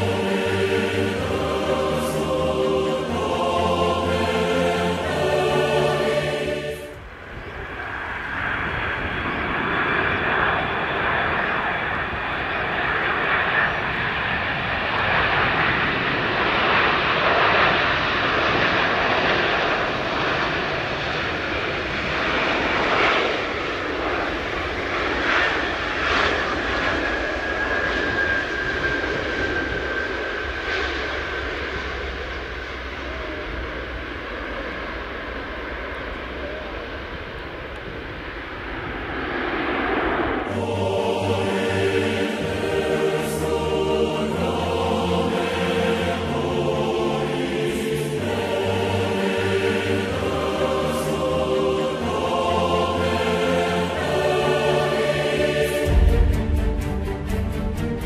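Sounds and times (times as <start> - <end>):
choir music: 0.0 - 7.1, 40.4 - 58.0
faint jet engine whine: 0.0 - 58.0
jet engines rumbling: 0.0 - 58.0.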